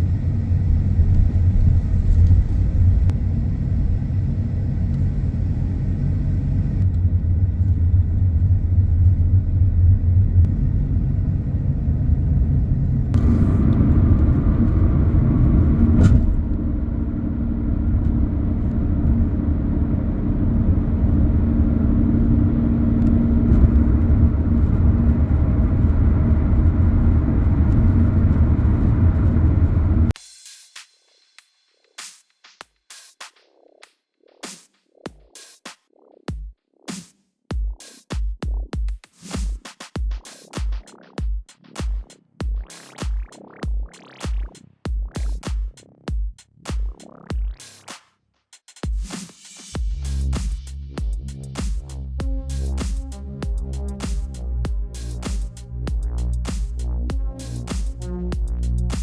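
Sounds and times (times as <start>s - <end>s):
car driving on road: 0.0s - 30.2s.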